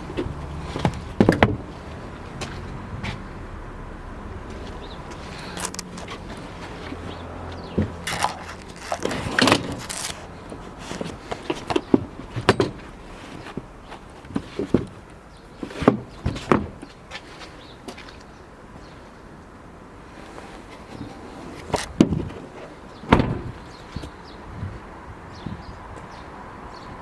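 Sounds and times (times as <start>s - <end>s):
seat parts knocking into place: 0.2s - 1.8s, 7.6s - 13.6s, 15.7s - 16.9s, 23.1s - 24.1s
latches clicking: 8.0s - 10.2s.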